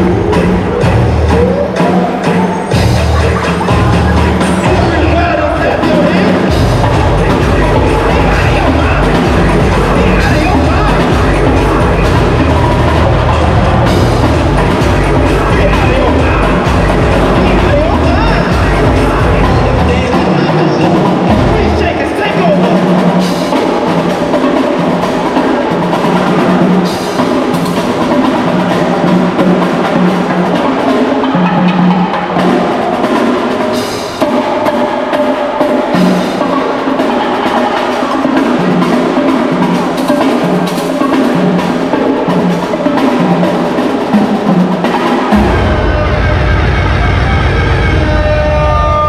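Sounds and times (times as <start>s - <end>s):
street drumming percussion: 0.0s - 49.0s
repeating bass note: 45.3s - 49.0s
low rumble: 45.4s - 49.0s.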